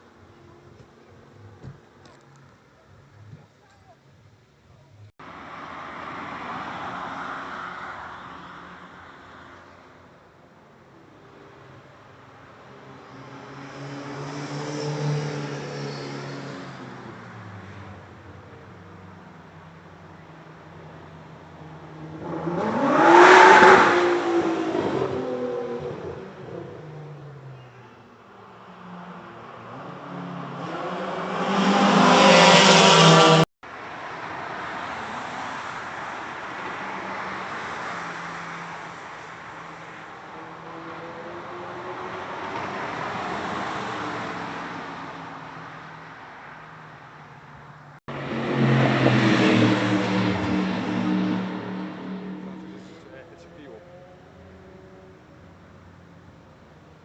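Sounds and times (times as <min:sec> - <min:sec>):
car engine approaching: 0:12.7 - 0:57.0
car driving past: 0:48.1 - 0:55.2.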